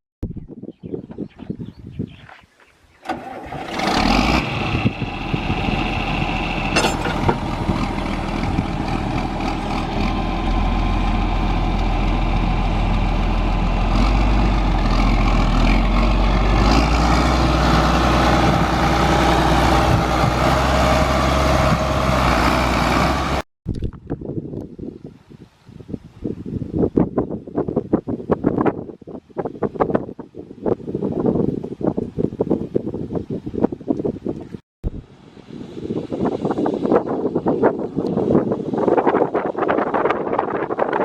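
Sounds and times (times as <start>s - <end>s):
tractor engine running: 3.0s - 23.4s.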